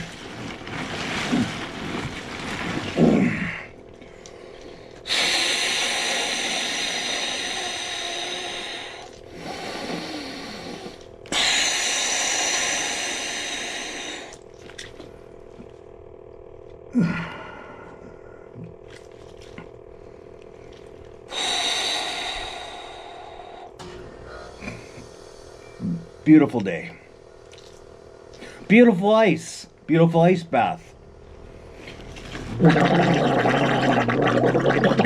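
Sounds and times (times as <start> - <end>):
man exhaling forcefully: 5.1 - 14.4
man groaning: 16.9 - 17.4.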